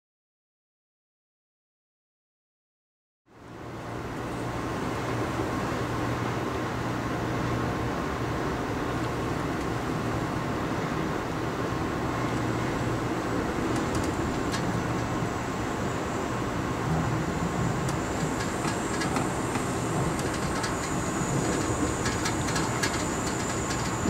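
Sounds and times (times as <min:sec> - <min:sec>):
constant low hum: 0:03.4 - 0:24.0
train wheels rumbling on rails: 0:08.9 - 0:24.0.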